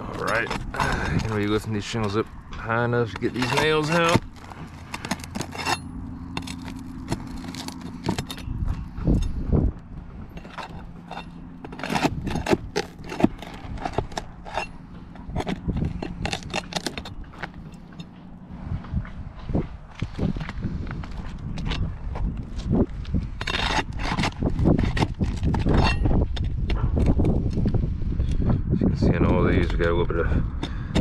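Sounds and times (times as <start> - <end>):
roof shingles scraping and crackling: 0.0 - 9.5, 10.3 - 18.4, 22.1 - 26.6
steady low hum: 0.0 - 29.0.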